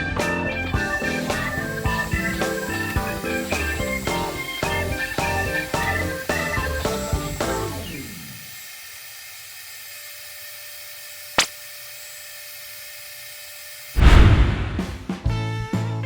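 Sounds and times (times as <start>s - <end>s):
electric blower whirring: 0.0s - 14.0s
loud rush of air: 14.0s - 15.1s.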